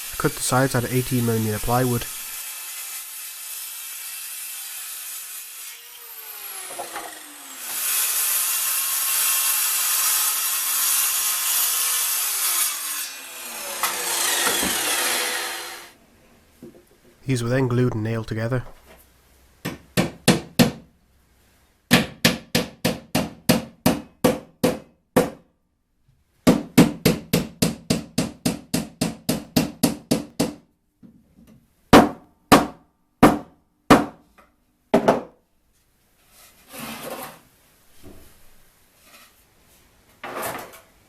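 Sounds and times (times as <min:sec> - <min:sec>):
hammer driving nails into wood: 0:13.8 - 0:15.2, 0:26.5 - 0:30.6.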